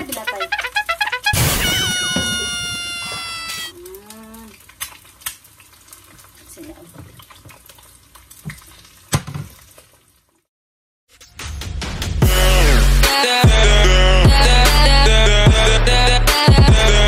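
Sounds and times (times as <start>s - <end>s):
eggs sizzling in oil: 0.0s - 10.5s.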